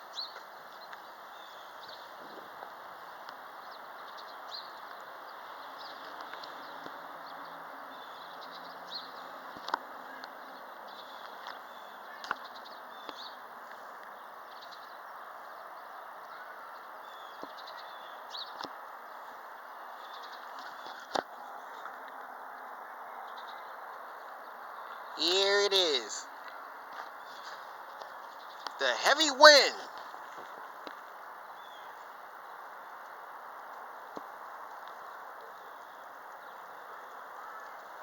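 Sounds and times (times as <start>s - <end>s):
small birds chirping: 3.1s - 33.1s.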